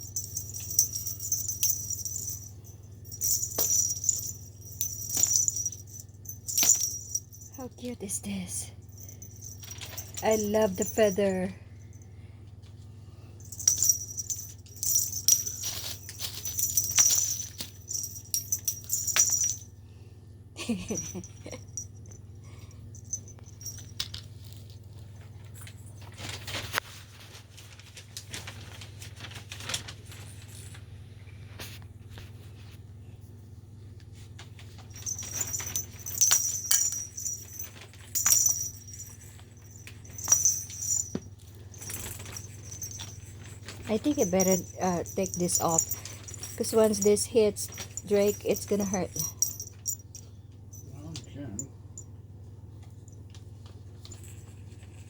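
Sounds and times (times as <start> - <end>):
cat toy jingling and rattling: 0.0 - 7.8, 8.8 - 12.1, 13.4 - 19.7, 20.9 - 24.9, 34.7 - 52.1.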